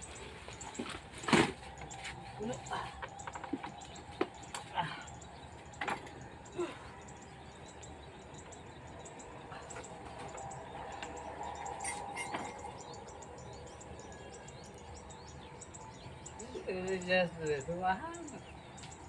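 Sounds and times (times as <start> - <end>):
birds calling: 0.0 - 19.0.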